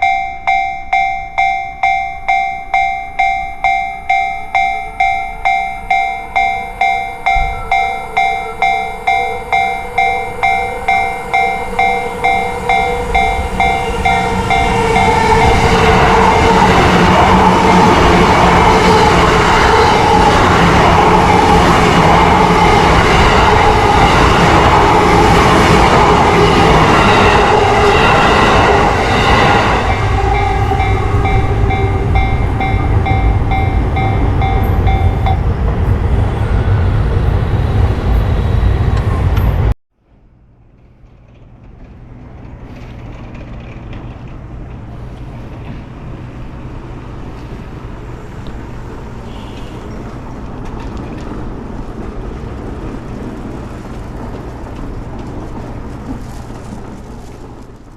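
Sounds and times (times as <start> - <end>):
pulsed tones: 0.0 - 39.4
train running with whine: 0.0 - 57.9.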